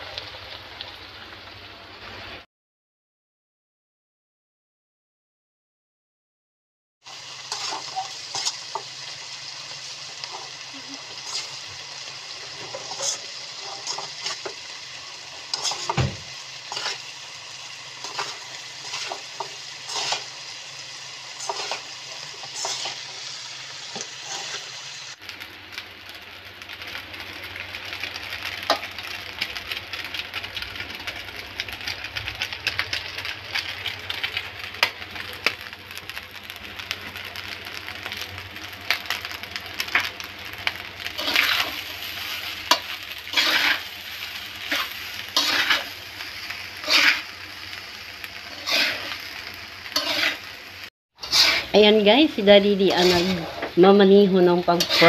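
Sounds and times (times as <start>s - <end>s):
dense crackling sizzle: 0.0s - 2.5s, 7.0s - 55.0s
food sizzling in a pan: 0.0s - 2.5s, 7.0s - 55.0s
stirring clicks and scrapes: 12.6s - 14.6s, 15.4s - 16.0s, 16.7s - 17.0s, 21.4s - 23.0s, 51.2s - 51.7s.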